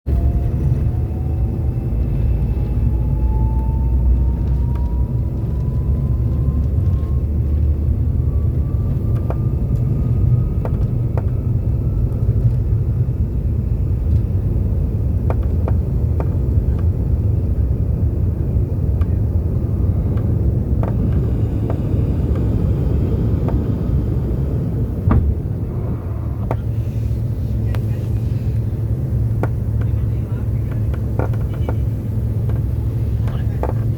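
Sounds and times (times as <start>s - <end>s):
engine whine rising in pitch: 0.1s - 30.6s
jet engines rumbling in cabin: 0.1s - 33.9s.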